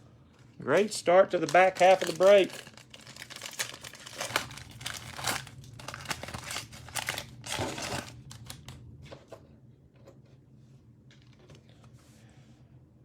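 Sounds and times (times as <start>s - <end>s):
cellophane wrapper crinkling: 0.4s - 8.8s.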